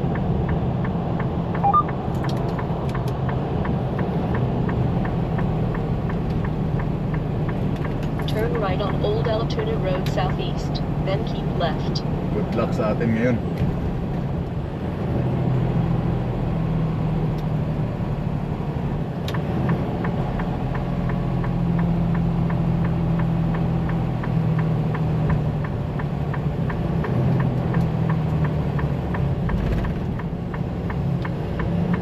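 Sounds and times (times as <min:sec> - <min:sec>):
turn signal ticking: 0:00.0 - 0:14.8, 0:18.6 - 0:32.0
truck engine running: 0:00.0 - 0:15.0.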